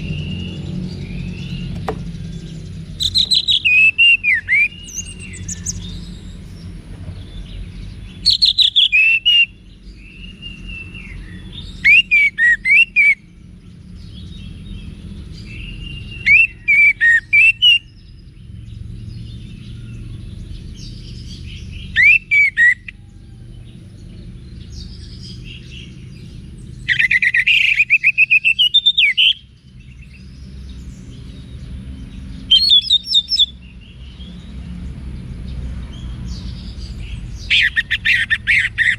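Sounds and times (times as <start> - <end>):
low steady rumble: 0.0 - 8.5
thrush singing whistles and trills: 0.0 - 34.7, 35.9 - 38.9.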